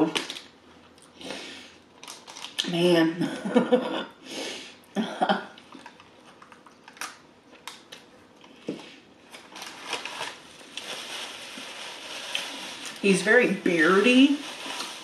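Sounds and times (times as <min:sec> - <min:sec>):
paper napkin crinkling: 0:09.3 - 0:15.0.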